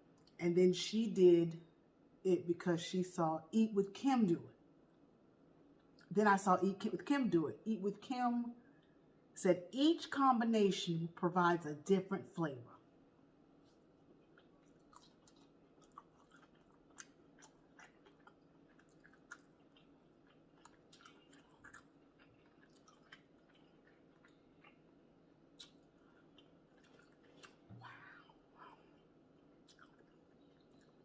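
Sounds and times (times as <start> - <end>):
close-up chewing: 13.6 - 25.0, 25.6 - 28.1, 28.8 - 31.0.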